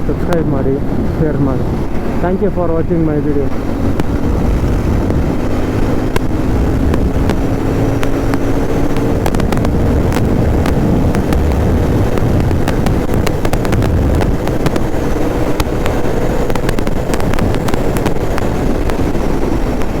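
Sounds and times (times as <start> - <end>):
motorcycle engine running: 0.0 - 20.0
wind buffeting microphone: 0.0 - 20.0
sharp clicks: 4.9 - 20.0.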